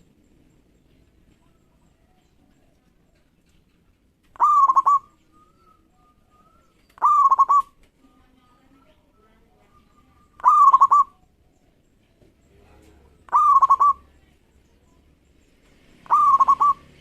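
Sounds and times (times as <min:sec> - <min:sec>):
dove cooing: 0:04.3 - 0:07.8, 0:09.4 - 0:11.6, 0:12.8 - 0:14.2, 0:16.0 - 0:17.0.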